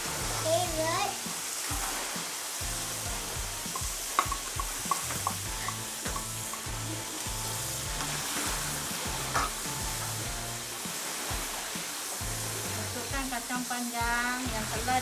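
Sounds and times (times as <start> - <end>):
food sizzling in a frying pan: 0.0 - 15.0
utensils clicking against pan: 3.7 - 6.8.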